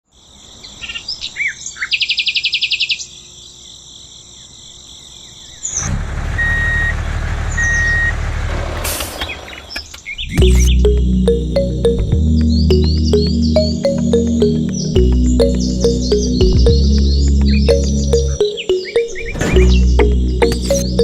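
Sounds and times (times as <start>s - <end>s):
crickets droning: 2.8s - 5.8s
steady beeps: 10.4s - 21.0s
fast pulsing trill: 10.5s - 21.0s.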